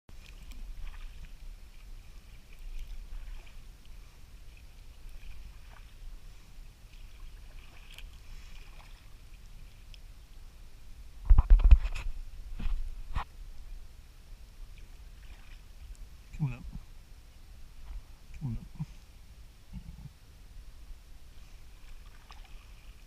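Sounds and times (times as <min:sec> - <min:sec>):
paddle drips and splashes: 0:00.1 - 0:10.5, 0:14.6 - 0:16.3, 0:21.5 - 0:23.0.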